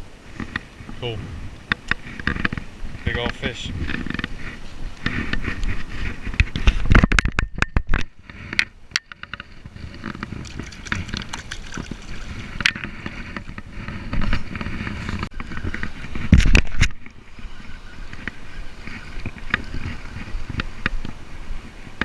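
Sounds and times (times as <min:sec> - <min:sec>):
wind buffeting the microphone: 0:00.0 - 0:22.0
knocks and rattles: 0:06.3 - 0:17.0.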